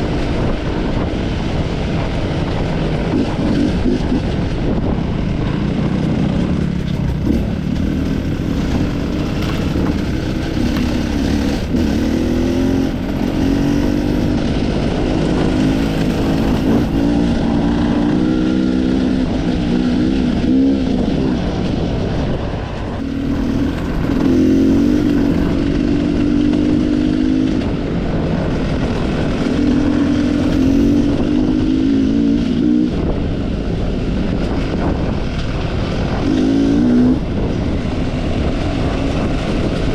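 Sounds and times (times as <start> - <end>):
dirt bike engine revving: 5.8 - 21.6, 22.9 - 27.8, 28.6 - 33.2, 35.9 - 37.5.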